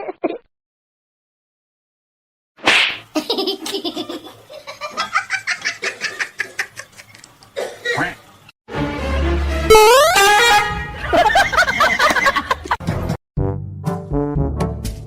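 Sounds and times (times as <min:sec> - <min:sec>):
person laughing hard: 0:11.0 - 0:12.8.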